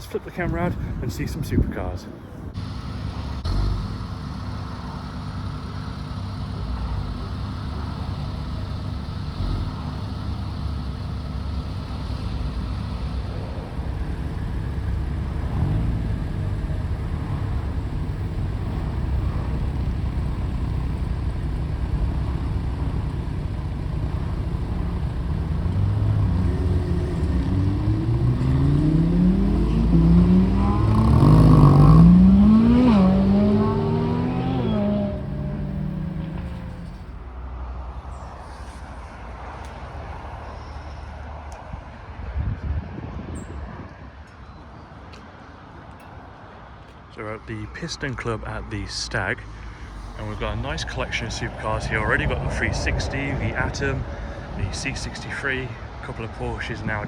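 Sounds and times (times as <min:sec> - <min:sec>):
car engines rumbling at low revs: 0:00.0 - 0:44.2, 0:46.8 - 0:57.0
car engine revving: 0:02.5 - 0:37.4, 0:49.1 - 0:56.4.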